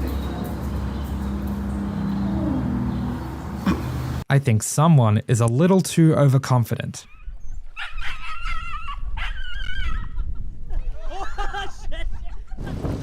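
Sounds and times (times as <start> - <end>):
dog whining and yelping: 7.1 - 10.0.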